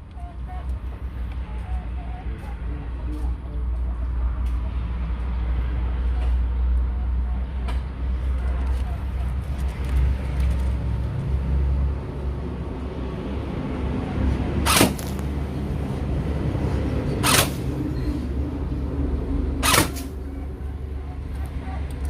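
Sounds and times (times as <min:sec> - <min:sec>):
airsoft gun shots: 0:14.6 - 0:15.2, 0:17.2 - 0:17.7, 0:19.6 - 0:20.1.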